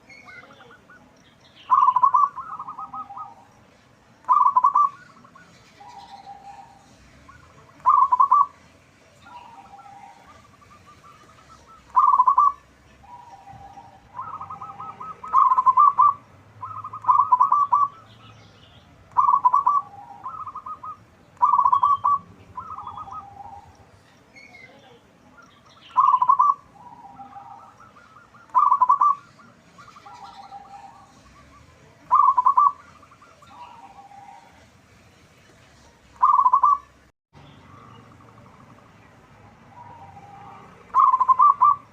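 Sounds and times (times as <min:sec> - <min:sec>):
dove cooing with trilled notes: 0:01.6 - 0:03.6, 0:04.2 - 0:08.6, 0:09.2 - 0:18.2, 0:19.1 - 0:23.8, 0:25.8 - 0:34.6, 0:36.2 - 0:36.9, 0:39.6 - 0:41.9.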